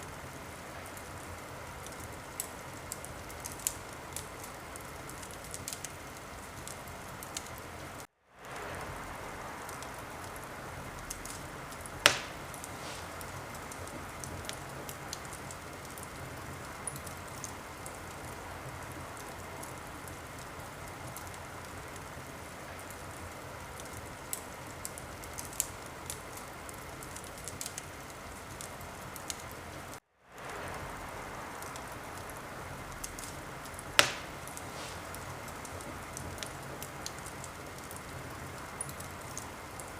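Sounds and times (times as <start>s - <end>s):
wood fire crackling: 0.0s - 39.9s
loud sharp pops of fire: 8.4s - 18.4s, 30.3s - 39.5s.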